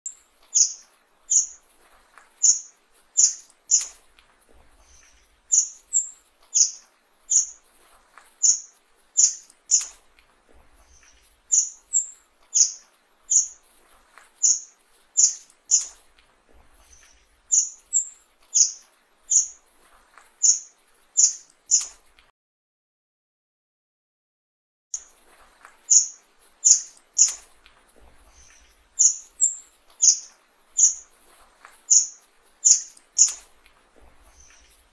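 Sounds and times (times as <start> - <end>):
bird high chip calls: 0.5 - 1.6, 2.4 - 4.0, 4.9 - 7.6, 8.4 - 9.9, 11.0 - 13.6, 14.4 - 16.0, 17.0 - 19.6, 20.4 - 21.9, 25.9 - 27.4, 28.4 - 31.1, 31.9 - 33.5.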